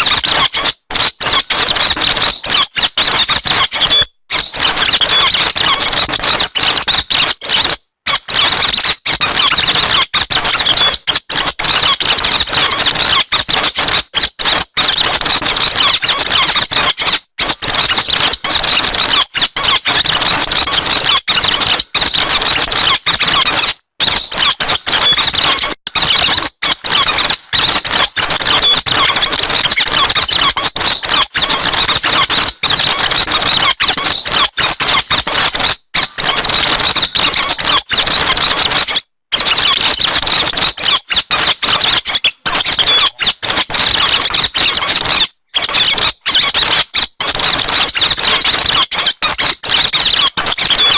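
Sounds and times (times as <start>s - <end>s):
high squeaky bird chattering: 22.4s - 27.9s, 39.6s - 44.9s, 45.8s - 46.5s.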